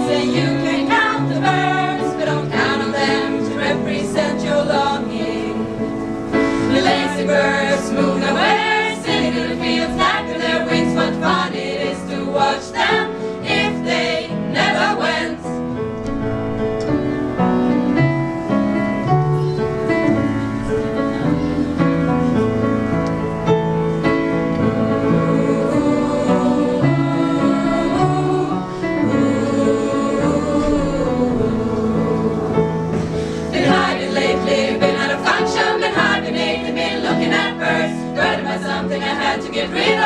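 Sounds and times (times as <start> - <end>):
choir singing: 0.0 - 15.7, 24.6 - 40.0
instrumental accompaniment: 0.0 - 40.0.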